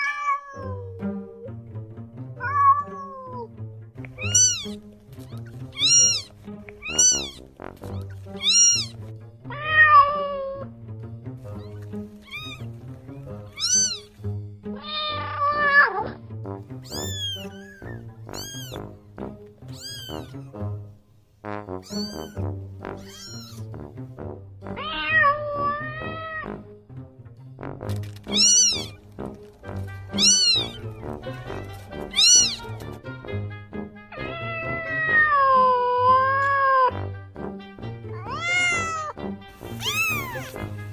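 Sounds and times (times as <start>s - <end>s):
cats meowing: 0.0s - 1.5s, 2.4s - 3.5s, 4.1s - 10.7s, 11.4s - 12.7s, 13.5s - 14.1s, 14.7s - 16.1s, 16.8s - 18.9s, 19.7s - 20.6s, 21.8s - 22.4s, 23.0s - 23.7s, 24.8s - 26.5s, 28.3s - 29.0s, 30.1s - 31.0s, 32.0s - 32.8s, 34.2s - 36.9s, 38.1s - 40.6s
background music: 0.0s - 40.9s.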